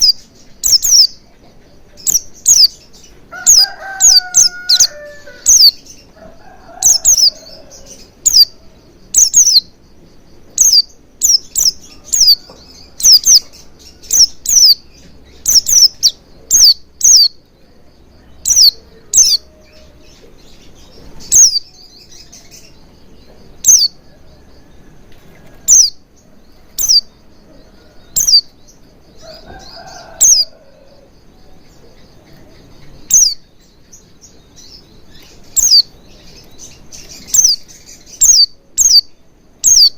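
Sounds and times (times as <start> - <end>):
high-pitched bird chirps: 0.0 - 6.1, 6.8 - 7.4, 8.0 - 9.8, 10.5 - 17.5, 18.3 - 20.2, 20.8 - 22.6, 23.5 - 24.0, 25.6 - 26.0, 26.7 - 27.1, 28.1 - 28.5, 30.2 - 30.5, 32.8 - 33.5, 35.2 - 36.0, 36.6 - 39.9.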